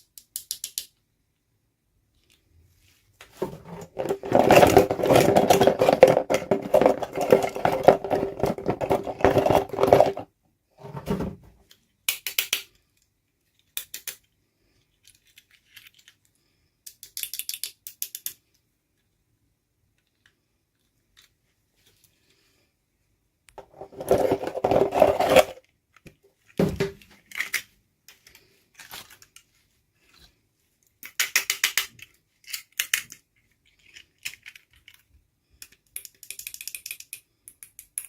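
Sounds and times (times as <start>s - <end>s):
plastic toy parts clicking and rattling: 0.0s - 1.0s, 3.4s - 10.3s, 11.7s - 19.2s, 19.9s - 21.4s, 23.6s - 29.5s, 30.8s - 38.0s.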